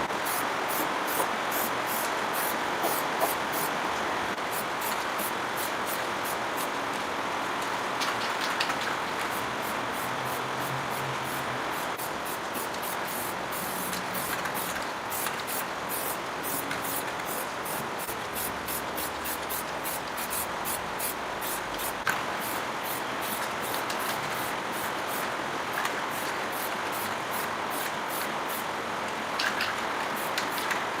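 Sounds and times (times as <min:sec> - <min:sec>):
high-pressure spray hissing: 0:00.0 - 0:03.7, 0:11.2 - 0:25.2.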